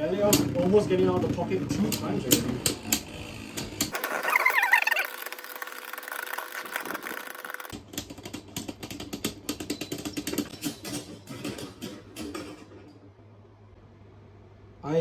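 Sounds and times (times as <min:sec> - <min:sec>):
spinning tops whirring: 0:01.7 - 0:07.8
tops clashing with rattling clicks: 0:07.7 - 0:12.9.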